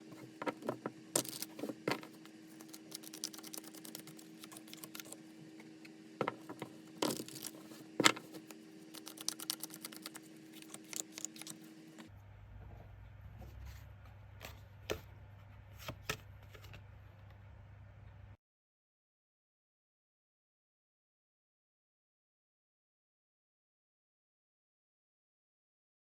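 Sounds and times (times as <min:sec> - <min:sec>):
steady low hum: 0:00.0 - 0:18.4
cards being shuffled and laid down: 0:00.1 - 0:05.2, 0:06.2 - 0:11.6.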